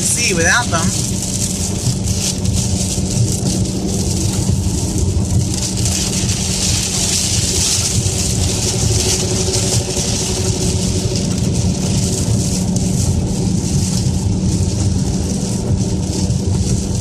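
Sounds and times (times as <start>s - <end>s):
car engine and road drone: 0.0s - 17.0s
rain and spray hissing: 0.0s - 17.0s
windshield wipers running: 0.0s - 17.0s.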